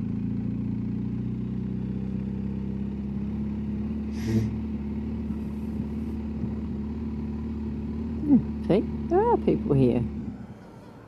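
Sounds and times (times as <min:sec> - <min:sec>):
motorcycle engine running: 0:00.0 - 0:10.6
short hiss: 0:04.1 - 0:04.6.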